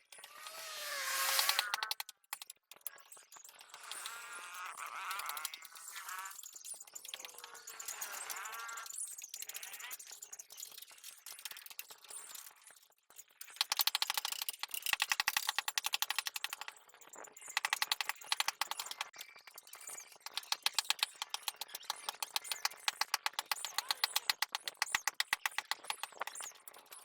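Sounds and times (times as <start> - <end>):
jackhammer hammering rock: 20.3 - 26.4.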